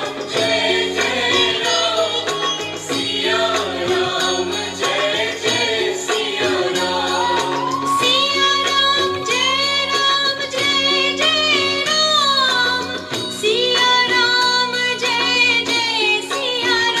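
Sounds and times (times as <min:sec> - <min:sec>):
instrumental accompaniment: 0:00.0 - 0:17.0
woman singing devotional song: 0:00.0 - 0:17.0.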